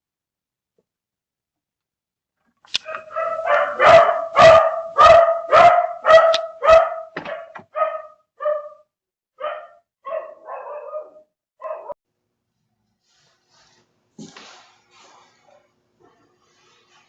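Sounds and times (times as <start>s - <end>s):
dog barking: 2.8s - 12.0s.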